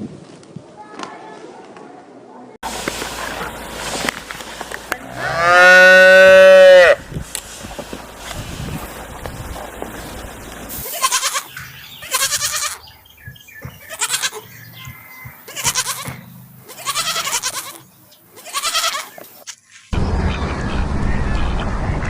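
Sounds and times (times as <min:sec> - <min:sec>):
goats bleating: 0:05.0 - 0:07.0, 0:10.8 - 0:12.9, 0:13.8 - 0:14.5, 0:15.5 - 0:19.2.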